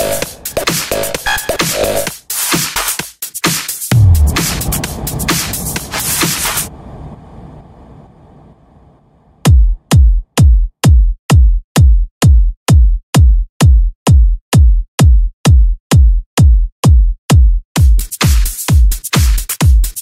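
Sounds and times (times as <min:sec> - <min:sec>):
drum machine kick drum: 0:00.0 - 0:05.9, 0:09.5 - 0:20.0
hissing percussion: 0:03.5 - 0:06.7.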